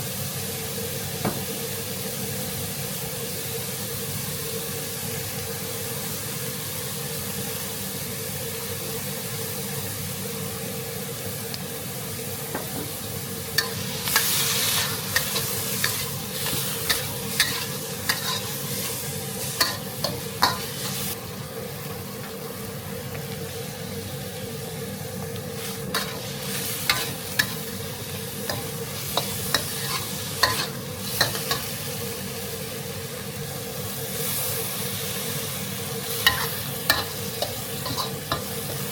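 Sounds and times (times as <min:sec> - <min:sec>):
food sizzling in a pan: 0:00.0 - 0:38.9
spatula scraping a pan: 0:13.6 - 0:21.1, 0:25.6 - 0:27.8, 0:28.5 - 0:31.7, 0:36.0 - 0:38.9.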